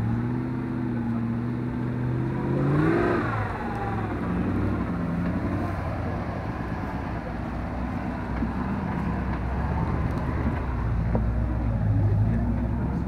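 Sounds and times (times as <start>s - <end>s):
vehicle engine running low revs: 0.0s - 13.0s.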